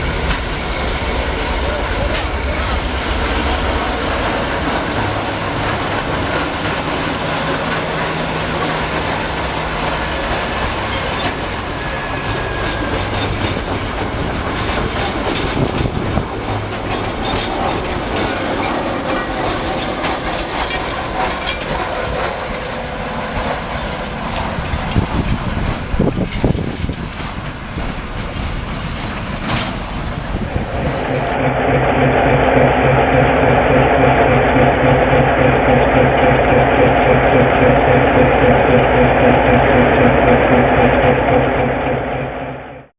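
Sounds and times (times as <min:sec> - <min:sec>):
wheels clicking over rail joints: 0:00.0 - 0:31.4
diesel locomotive engine drone: 0:00.0 - 0:42.9.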